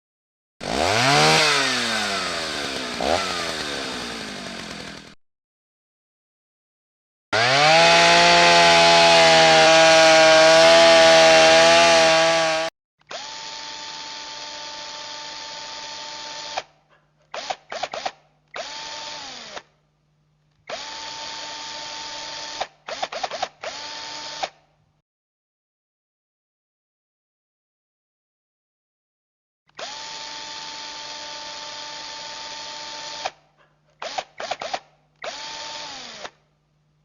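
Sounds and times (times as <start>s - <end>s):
loud power tool motor: 0.6s - 5.2s, 7.3s - 19.7s, 20.7s - 24.6s, 29.7s - 33.4s, 34.0s - 36.4s
whining power tool motor bursts: 0.6s - 5.2s, 7.4s - 16.7s, 17.3s - 19.7s, 20.7s - 24.6s, 29.7s - 33.4s, 34.0s - 36.4s.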